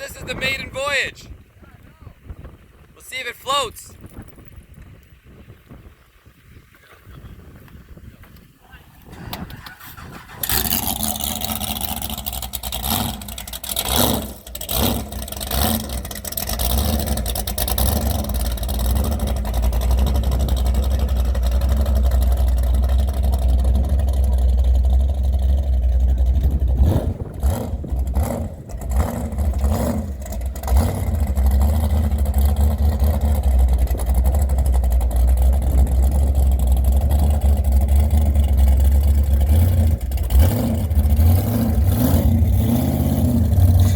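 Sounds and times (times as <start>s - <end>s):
boat engine revving: 9.1s - 43.9s.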